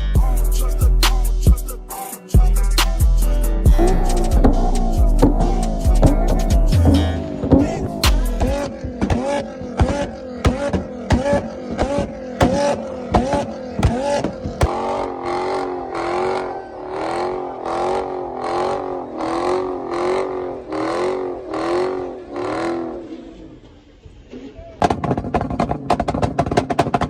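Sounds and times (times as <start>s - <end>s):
car engine revving in blips: 2.6s - 27.0s
sharp exhaust bangs: 2.7s - 23.8s.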